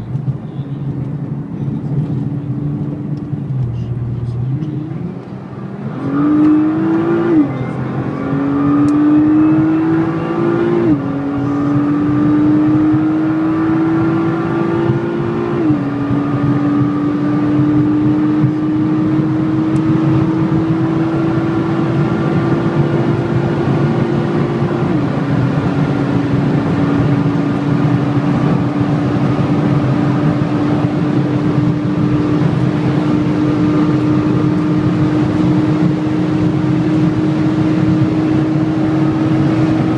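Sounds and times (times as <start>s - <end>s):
wind and road noise: 0.0s - 39.9s
engine accelerating through gears: 1.8s - 39.9s.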